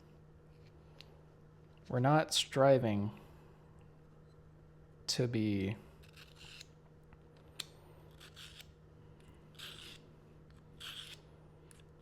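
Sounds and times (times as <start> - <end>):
knife scraping on sharpener: 6.0 - 6.7, 8.1 - 8.7, 9.5 - 10.0, 10.8 - 11.8.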